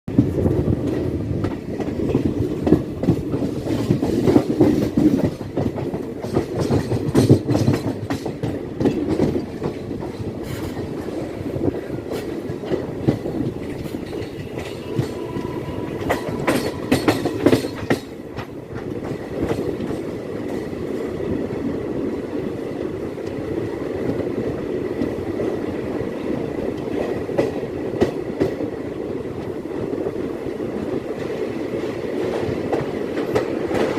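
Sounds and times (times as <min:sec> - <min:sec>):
train rumbling over bridge: 0:00.1 - 0:33.9
wheels clacking over rail joints: 0:00.8 - 0:20.6.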